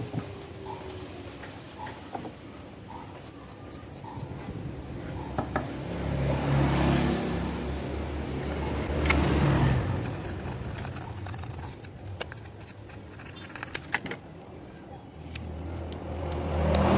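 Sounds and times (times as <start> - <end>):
scratchy rubbing on connector: 9.0 - 14.0.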